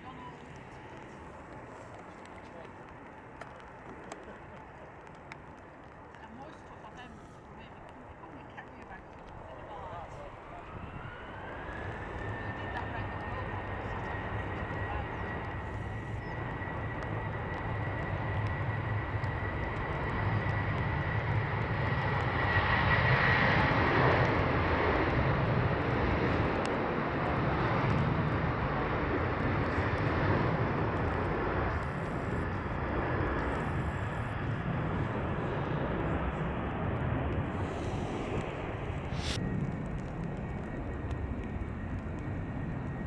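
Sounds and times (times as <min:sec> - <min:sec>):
jet engines running: 0:00.0 - 0:43.0
thin high whine: 0:37.7 - 0:39.5.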